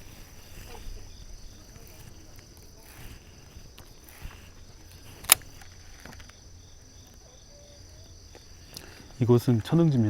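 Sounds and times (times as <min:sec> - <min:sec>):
insects chirring: 0:00.0 - 0:10.0
sharp click: 0:05.2 - 0:06.4.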